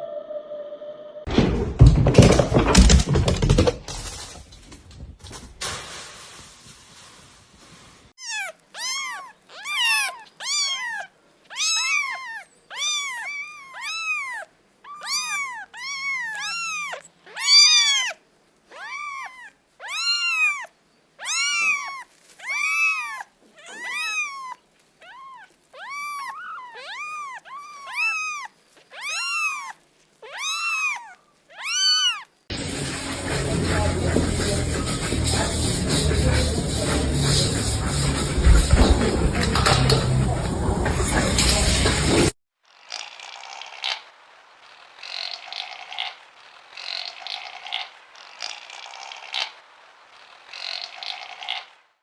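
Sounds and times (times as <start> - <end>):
cat meowing: 8.2 - 32.4
music: 32.5 - 42.3.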